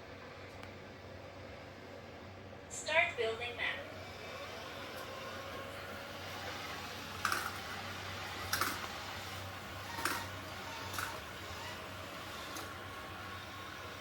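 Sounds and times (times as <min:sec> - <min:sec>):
robot vacuum humming: 0:02.9 - 0:14.0.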